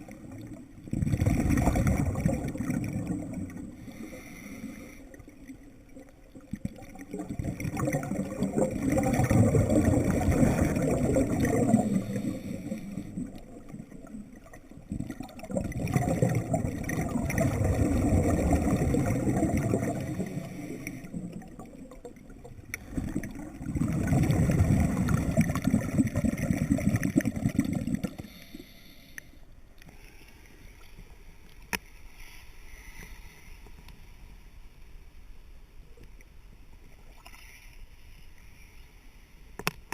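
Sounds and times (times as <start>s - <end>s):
underwater air bubbles rushing: 0.0s - 4.3s, 5.1s - 28.4s
diver breathing in: 3.8s - 5.3s, 11.7s - 13.4s, 19.9s - 21.3s, 28.1s - 30.8s, 32.1s - 33.9s.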